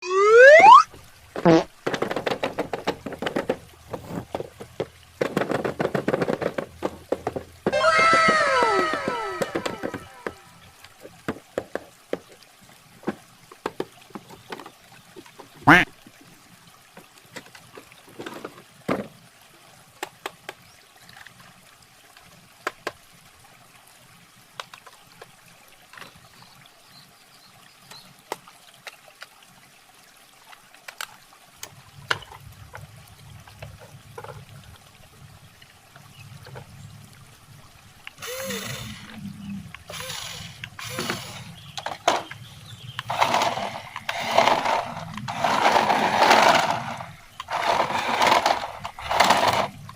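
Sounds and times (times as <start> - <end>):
toy car motor surging: 7.7 - 10.6, 38.2 - 39.2, 39.9 - 42.3, 43.0 - 49.8
toy car clicks and taps: 43.0 - 49.7.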